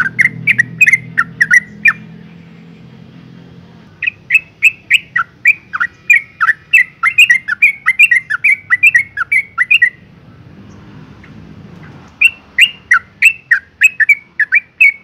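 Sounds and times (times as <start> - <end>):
bird chattering: 0.0 - 2.4, 4.0 - 10.1, 10.7 - 15.0.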